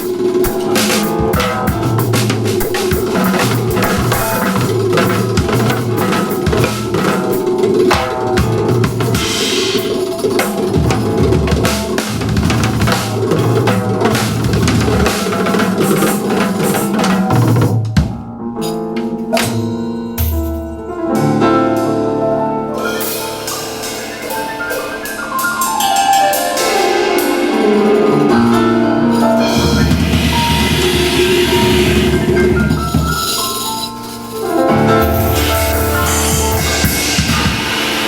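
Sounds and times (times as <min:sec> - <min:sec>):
band music with drum kit: 0:00.0 - 0:38.0
long falling sweep: 0:22.8 - 0:33.8
pitched notes: 0:22.8 - 0:38.0.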